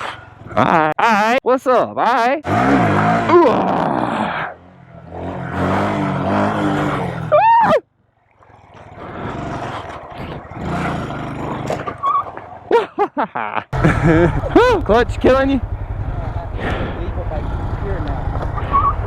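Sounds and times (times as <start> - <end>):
mini bike engine running: 2.5 - 7.6, 8.4 - 12.6, 13.8 - 19.0.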